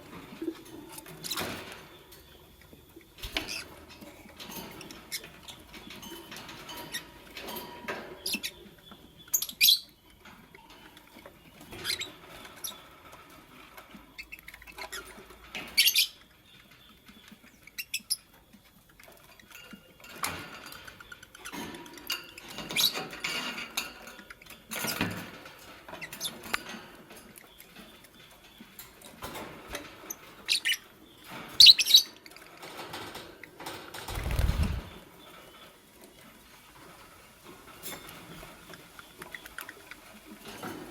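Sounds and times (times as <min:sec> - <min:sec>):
birds rustling: 0:16.9 - 0:40.9
scratching and pattering: 0:32.6 - 0:35.1
wing flutters: 0:33.8 - 0:35.1.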